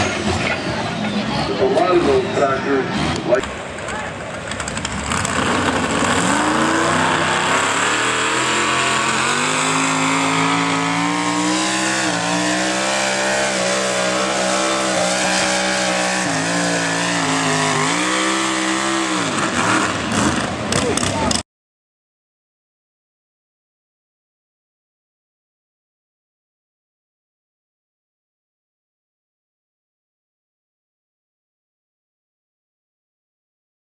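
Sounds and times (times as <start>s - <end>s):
tractor engine at full throttle: 0.0s - 21.4s.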